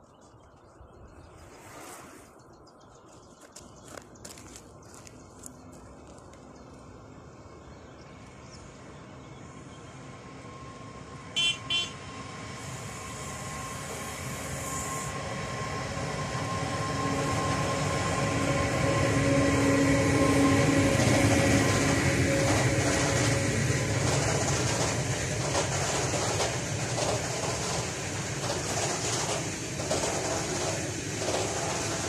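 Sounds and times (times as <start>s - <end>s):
freight train rumble: 4.0s - 32.0s
locomotive tonal hum: 5.6s - 32.0s
train horn toots: 11.4s - 12.2s.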